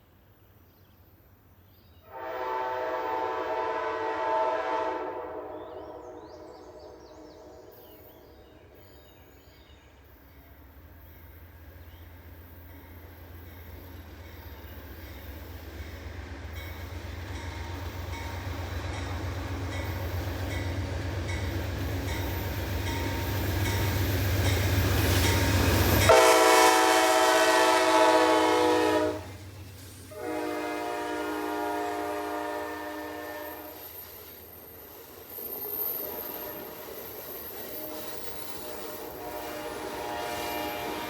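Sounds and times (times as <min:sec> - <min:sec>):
locomotive horn chord: 0:02.1 - 0:07.9, 0:26.1 - 0:29.4, 0:30.1 - 0:33.8, 0:38.9 - 0:41.0
diesel locomotive engine rumble: 0:02.2 - 0:41.0.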